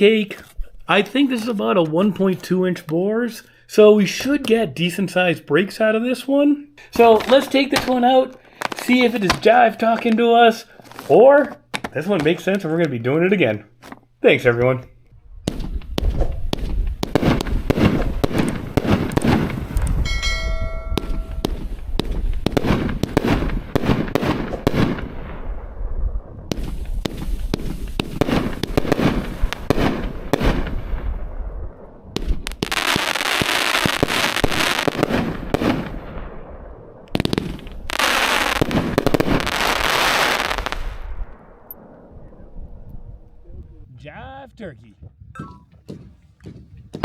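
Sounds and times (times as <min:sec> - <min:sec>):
dense hissing firework crackle: 0:15.5 - 0:20.1, 0:21.4 - 0:41.2
firework launch thumps and bursts: 0:15.5 - 0:25.2, 0:26.5 - 0:31.1.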